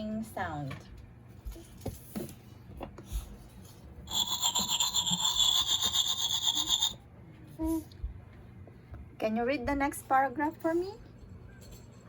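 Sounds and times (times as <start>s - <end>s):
tooth-brushing scrubbing sound effect: 4.1s - 7.0s.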